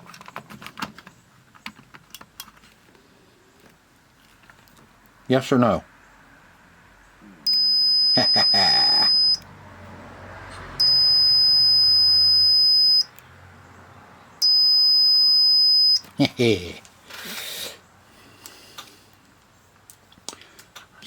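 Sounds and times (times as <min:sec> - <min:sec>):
multimeter high-pitched beeps: 0:07.5 - 0:09.4, 0:10.8 - 0:13.1, 0:14.4 - 0:16.1.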